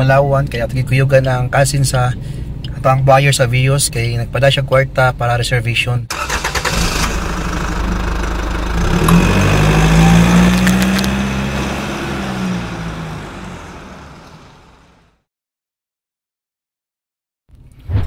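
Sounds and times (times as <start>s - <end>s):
car engine revving: 6.1s - 15.2s.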